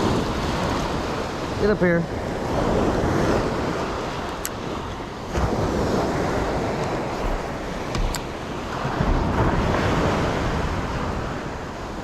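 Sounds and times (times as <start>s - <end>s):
waves and surf: 0.0s - 12.0s
wind buffeting microphone: 0.0s - 12.0s.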